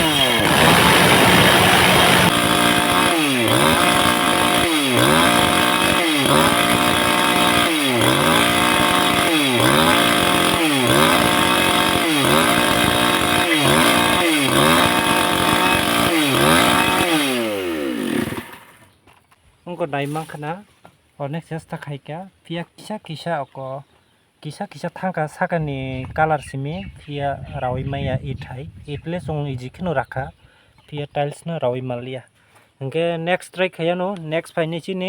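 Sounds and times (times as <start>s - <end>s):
chainsaw cutting tile: 0.0s - 18.9s.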